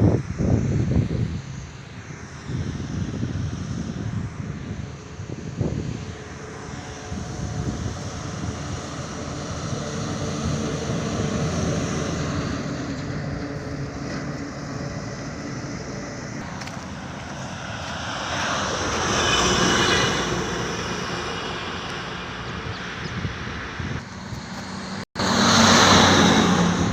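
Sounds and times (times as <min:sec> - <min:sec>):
vehicle passing: 0:05.6 - 0:26.9
truck engine running: 0:06.0 - 0:26.9.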